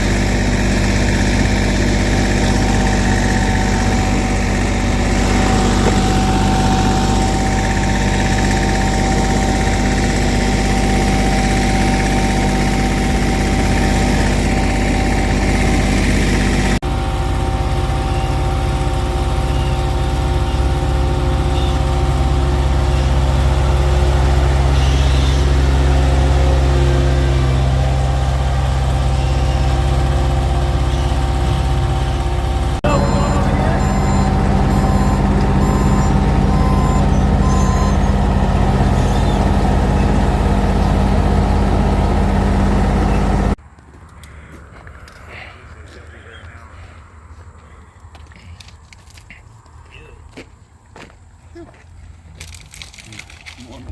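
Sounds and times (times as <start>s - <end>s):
paving machinery engines running: 0.0s - 53.9s.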